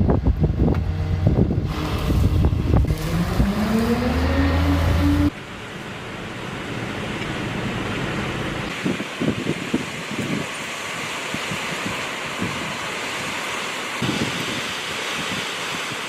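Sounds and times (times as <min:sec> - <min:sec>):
wind rushing: 0:00.0 - 0:05.3
vehicle engine whining: 0:00.0 - 0:08.7.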